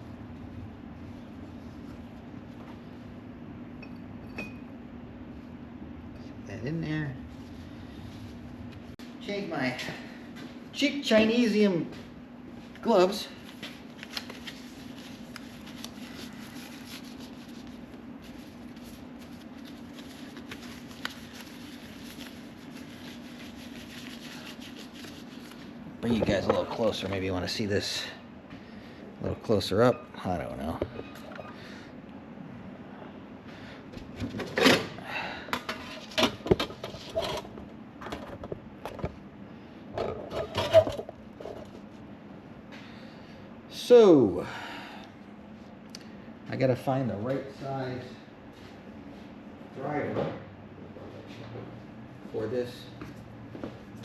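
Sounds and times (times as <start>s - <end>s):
steady low hum: 0.0s - 54.0s
gloves rustling and clicking: 13.5s - 25.7s.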